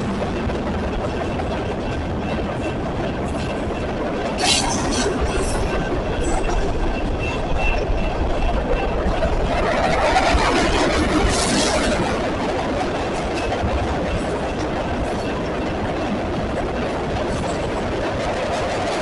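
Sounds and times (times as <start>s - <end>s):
train cars rumbling on rails: 0.0s - 19.0s.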